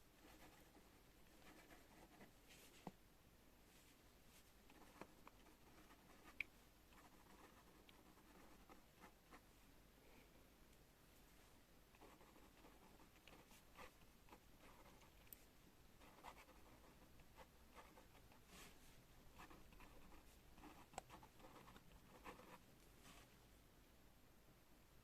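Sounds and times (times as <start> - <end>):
pen scratching on paper: 0.2 - 2.3, 4.7 - 6.4, 7.0 - 9.2, 12.0 - 15.1, 16.0 - 18.7, 19.4 - 22.6.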